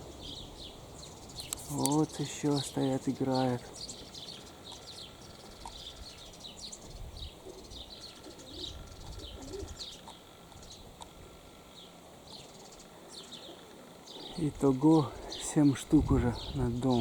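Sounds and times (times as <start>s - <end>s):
small birds chirping: 0.0s - 17.0s
wind rumble on microphone: 5.7s - 8.0s, 8.6s - 10.0s, 15.8s - 17.0s
pigeon cooing: 7.3s - 11.2s.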